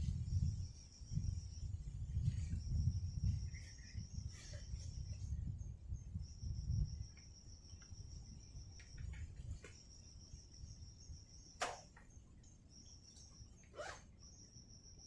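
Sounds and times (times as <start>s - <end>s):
high-pitched insect call: 0.0s - 15.0s
sharp click or knock: 11.6s - 12.0s.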